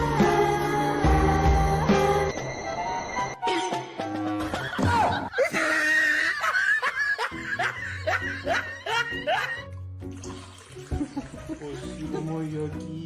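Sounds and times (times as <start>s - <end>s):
background music: 0.0s - 13.0s
person laughing: 4.5s - 9.7s.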